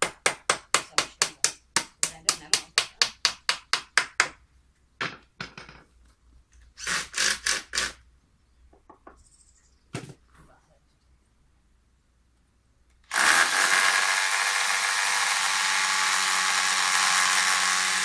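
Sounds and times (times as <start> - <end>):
knocks and scraping: 5.0 - 8.0, 9.9 - 10.6.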